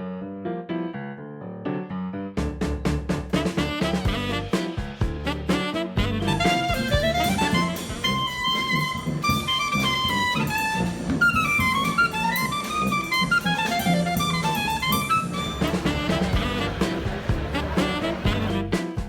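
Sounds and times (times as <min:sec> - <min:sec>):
jazz music with horn melody: 0:02.4 - 0:19.0.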